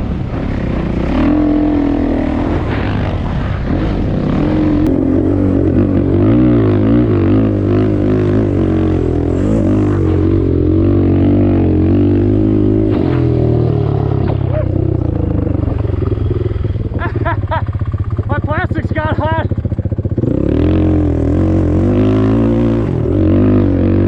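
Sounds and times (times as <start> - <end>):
off-road engine revving: 0.0 - 24.0.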